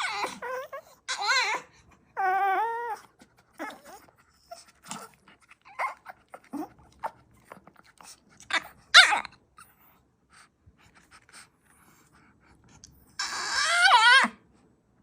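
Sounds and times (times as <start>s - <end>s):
dog yelping: 0.0s - 7.2s, 8.5s - 9.3s, 13.2s - 14.4s
dog whining and whimpering: 0.0s - 7.6s, 8.4s - 9.9s, 13.1s - 14.5s.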